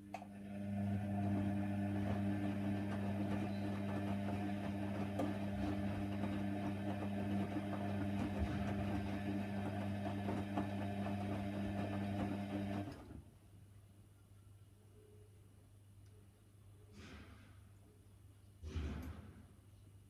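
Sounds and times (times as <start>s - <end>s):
washer dryer motor humming: 0.0s - 13.1s.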